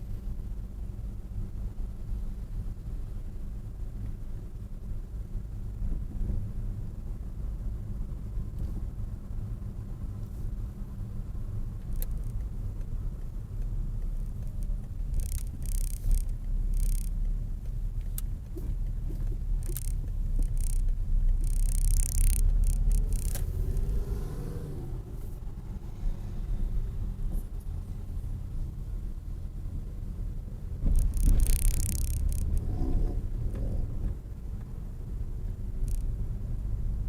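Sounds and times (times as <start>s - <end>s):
car engine rumble: 0.0s - 37.0s
road noise: 0.0s - 37.0s
passing car engine revving: 21.4s - 27.5s.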